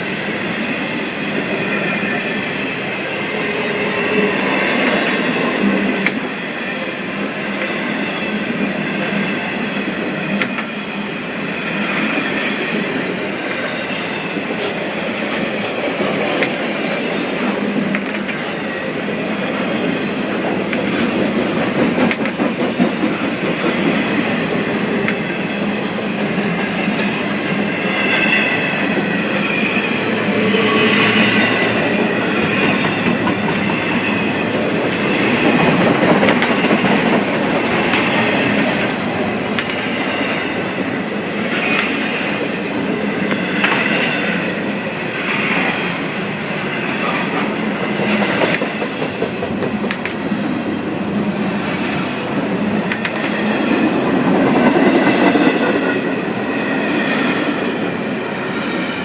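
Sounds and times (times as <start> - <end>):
train wheels clattering over rail joints: 19.4 - 27.6, 30.9 - 40.2, 46.4 - 50.5.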